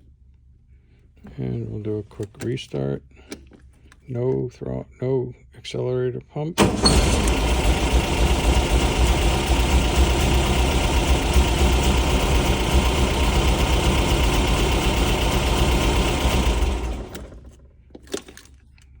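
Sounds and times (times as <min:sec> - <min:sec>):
car engine idling: 0:06.6 - 0:17.7.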